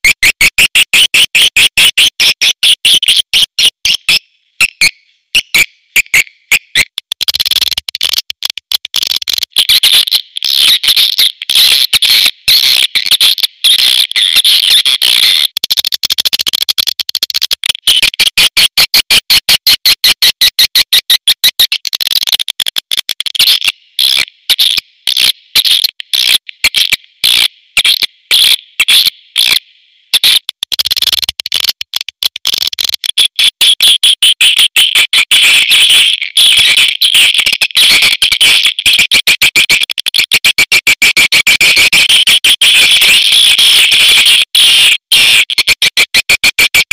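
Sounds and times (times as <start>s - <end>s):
recorded swiftlet chirps and clicks: 0.0s - 18.8s, 19.5s - 40.2s.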